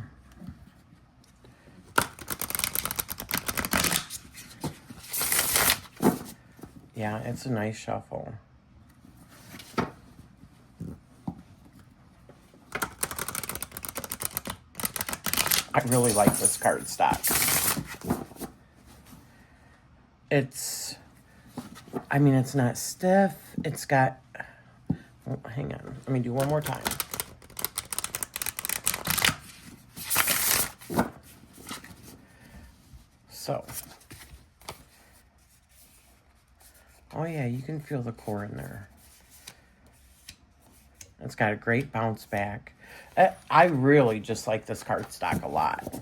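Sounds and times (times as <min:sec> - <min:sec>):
cards being shuffled: 0:01.9 - 0:06.3, 0:12.7 - 0:18.5, 0:26.1 - 0:31.9
card rustles: 0:01.9 - 0:06.8, 0:10.8 - 0:18.6, 0:25.9 - 0:32.2, 0:43.2 - 0:46.0.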